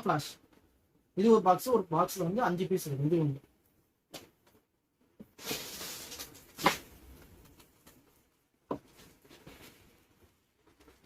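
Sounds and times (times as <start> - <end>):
cardboard and paper rustling: 5.4 - 6.8.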